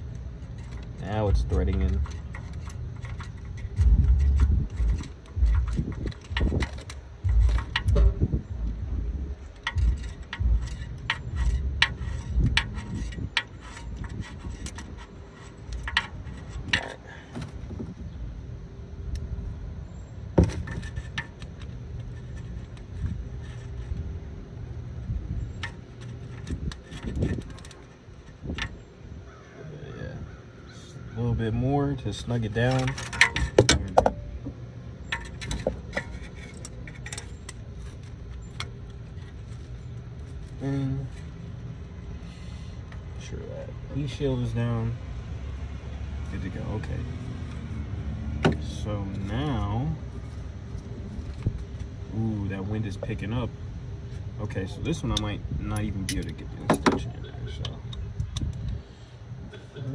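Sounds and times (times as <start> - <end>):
ratchet clinking and clicking: 0.0 - 8.4, 9.4 - 17.1, 25.4 - 28.9, 32.3 - 34.3, 35.0 - 42.1
wind rumble on microphone: 0.0 - 29.4, 42.8 - 53.2, 54.0 - 59.7.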